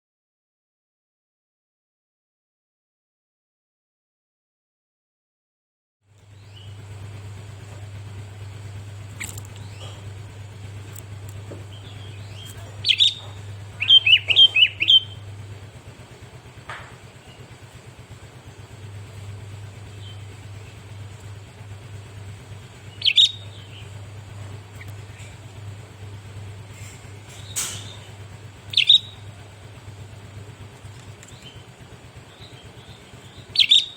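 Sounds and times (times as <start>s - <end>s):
steady low hum: 6.1s - 33.9s
bulbul chirping calls: 7.7s - 33.9s.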